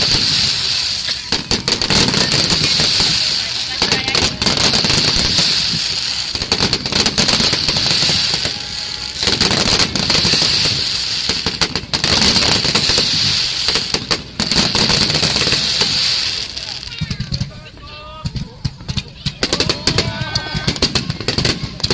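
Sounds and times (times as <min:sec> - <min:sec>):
fireworks bangs and crackling: 0:00.0 - 0:21.9.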